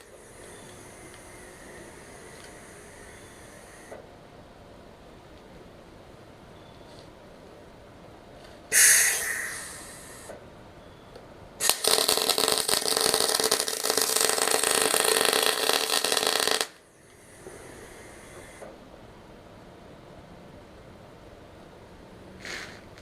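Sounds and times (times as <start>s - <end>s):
arc welding crackling: 0.0s - 4.0s, 11.6s - 18.7s, 22.4s - 23.0s.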